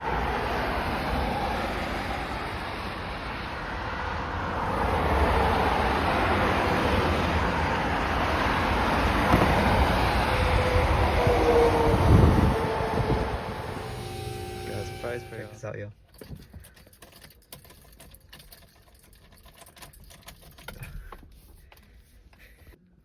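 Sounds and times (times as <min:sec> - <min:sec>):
motor vehicle rumble: 0:04.3 - 0:15.6.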